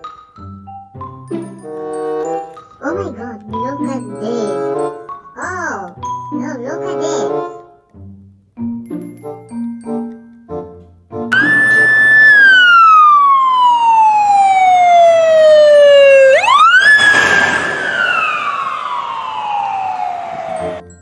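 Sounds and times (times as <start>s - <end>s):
emergency vehicle siren wailing: 11.3s - 20.9s.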